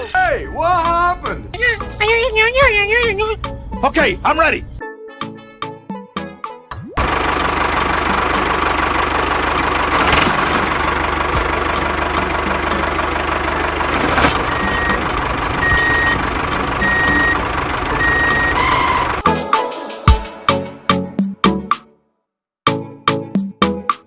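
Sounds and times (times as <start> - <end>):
vehicle engine running: 7.0 - 19.2
reversing alarm beeping: 14.5 - 19.2.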